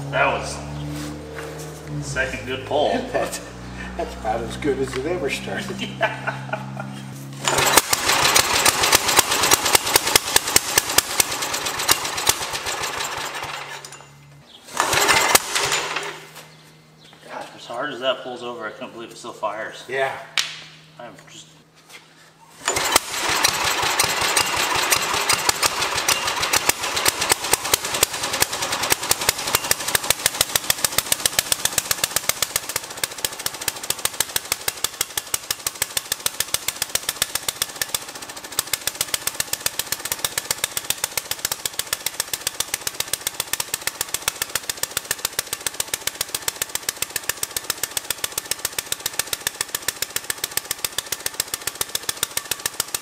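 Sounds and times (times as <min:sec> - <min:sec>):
small engine firing pops: 0:07.4 - 0:13.9, 0:22.6 - 0:53.0.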